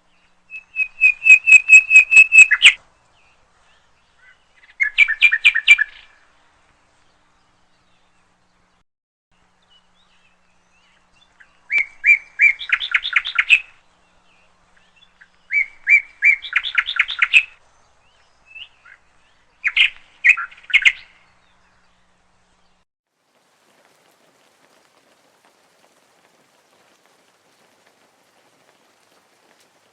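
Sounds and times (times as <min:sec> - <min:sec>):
songbird singing: 0:00.0 - 0:29.9.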